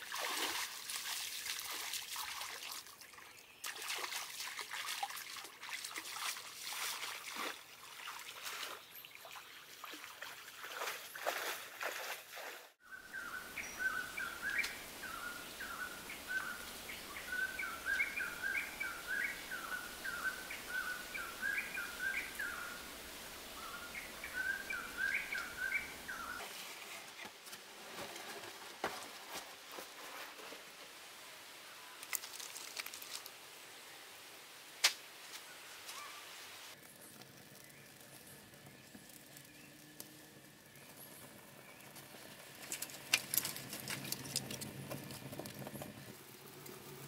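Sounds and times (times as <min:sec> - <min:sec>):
bird singing chirping notes: 0:12.8 - 0:22.9, 0:23.5 - 0:26.4.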